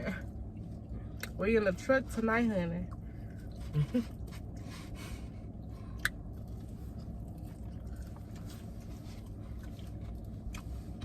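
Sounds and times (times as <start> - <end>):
truck cabin hum: 0.0 - 11.0
person chewing: 5.6 - 11.0.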